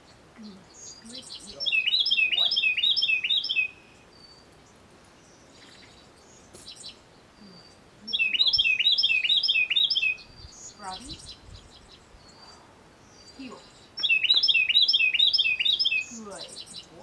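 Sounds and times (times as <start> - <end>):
faint bird chirps: 0.0 - 17.0
songbird singing: 0.0 - 17.0.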